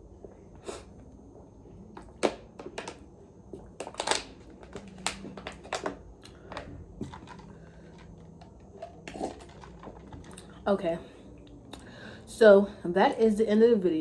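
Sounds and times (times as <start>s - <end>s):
crab shells cracking: 3.8s - 10.4s.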